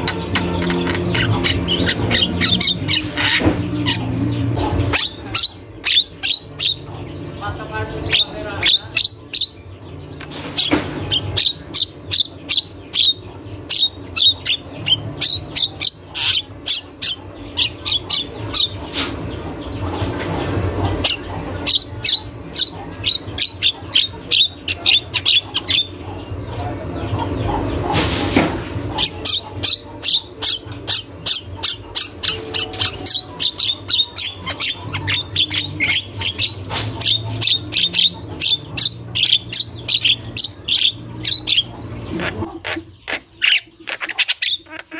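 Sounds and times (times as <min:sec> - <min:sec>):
myna bird singing: 0:00.0 - 0:44.9.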